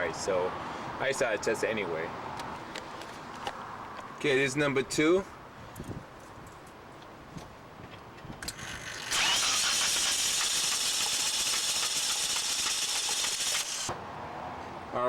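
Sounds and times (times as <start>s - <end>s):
starter motor cranking engine: 8.4s - 13.9s.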